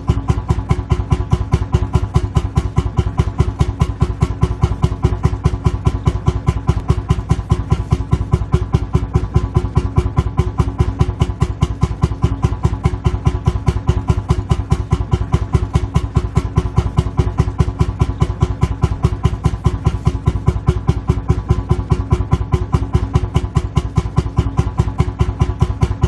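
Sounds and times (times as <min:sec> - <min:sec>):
tractor engine thumping idle: 0:00.0 - 0:26.0.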